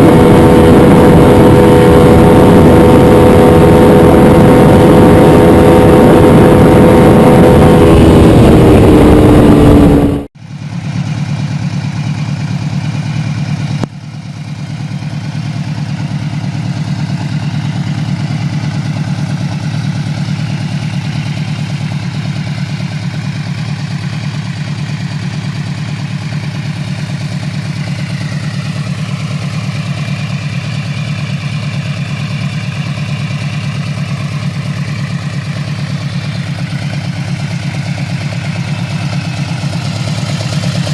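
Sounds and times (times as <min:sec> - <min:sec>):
motorcycle engine revving and idling: 0:00.0 - 0:40.9.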